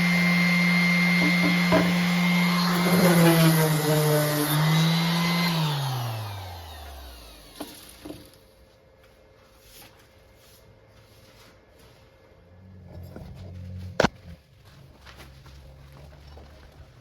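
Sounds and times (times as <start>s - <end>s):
power tool motor spinning down: 0.0s - 8.4s.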